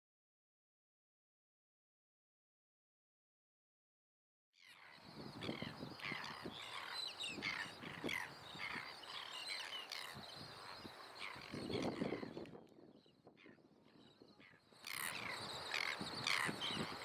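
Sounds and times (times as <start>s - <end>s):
seabirds calling: 4.6s - 17.0s.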